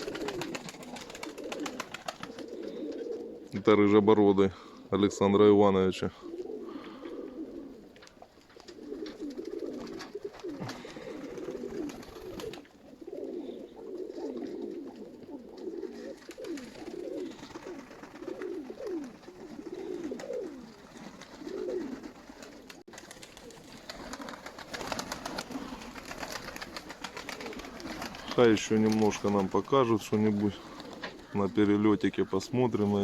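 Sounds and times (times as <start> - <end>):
pigeons cooing: 0.0 - 3.7, 4.3 - 5.2, 5.9 - 33.0.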